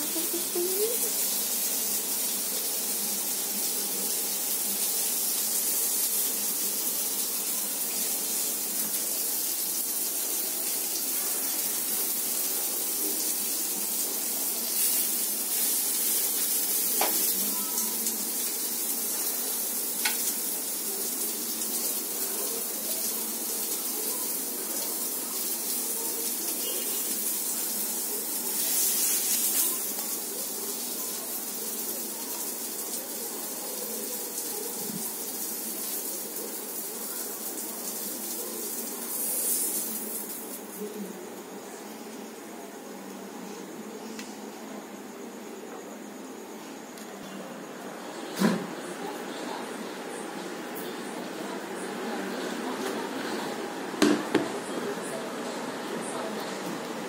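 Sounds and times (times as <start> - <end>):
food sizzling on a griddle: 0.0 - 43.8, 47.6 - 57.0.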